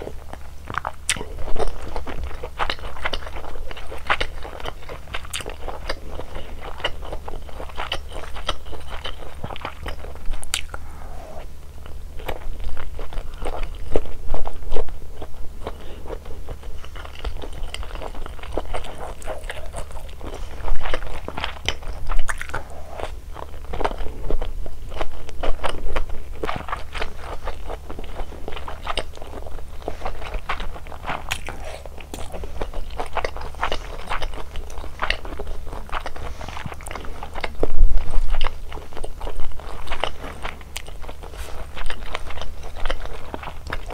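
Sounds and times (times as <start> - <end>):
wet chewing: 0.0 - 43.9
crunchy bites: 20.8 - 24.1.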